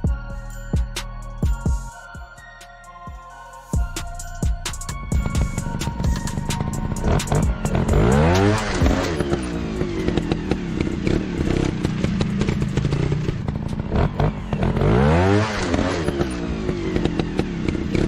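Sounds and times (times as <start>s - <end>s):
motorcycle engine revving: 4.9s - 18.0s.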